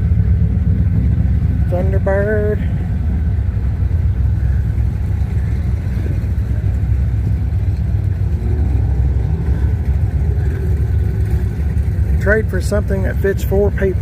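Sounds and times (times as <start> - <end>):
passing traffic rumble: 0.0 - 14.0
rising engine note: 2.7 - 12.2.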